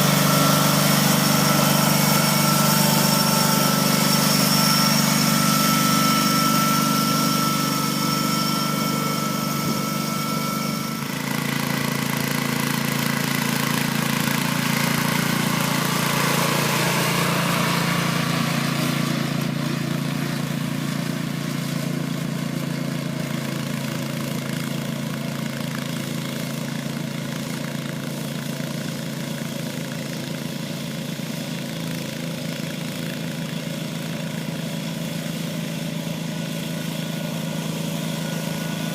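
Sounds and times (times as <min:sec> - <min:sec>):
high whine: 0:00.0 - 0:11.2
tractor engine running: 0:00.0 - 0:38.9.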